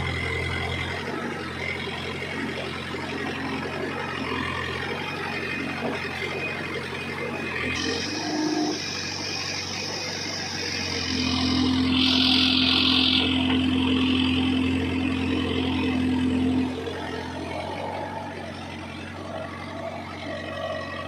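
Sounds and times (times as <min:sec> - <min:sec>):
heavy diesel engine running: 0:00.0 - 0:21.0
high whine: 0:07.2 - 0:21.0.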